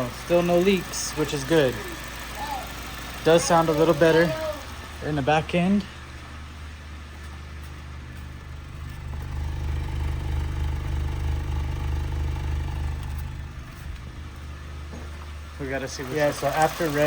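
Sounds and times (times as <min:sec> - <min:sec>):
car engine revving: 0:00.0 - 0:17.0
engine knocking: 0:00.0 - 0:17.0.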